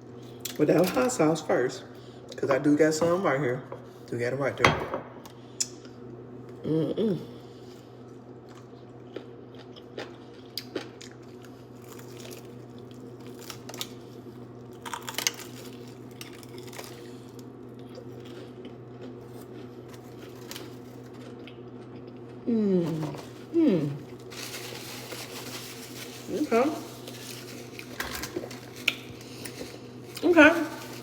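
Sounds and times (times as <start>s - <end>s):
steady low hum: 0.0s - 31.0s
chewing crunchy fried chicken: 7.4s - 31.0s.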